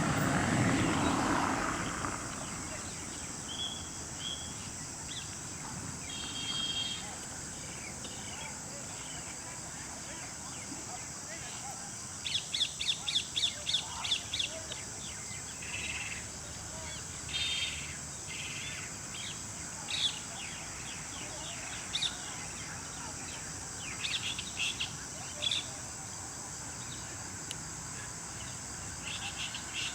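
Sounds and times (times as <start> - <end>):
birds chirping and trilling: 6.0 - 7.1.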